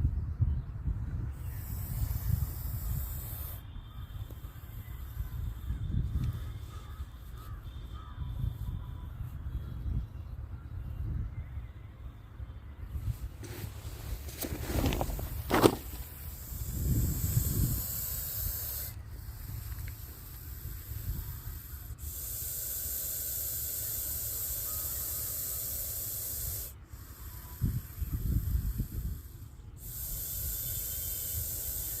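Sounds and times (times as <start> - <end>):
snake hissing: 1.3 - 8.1, 13.4 - 32.0.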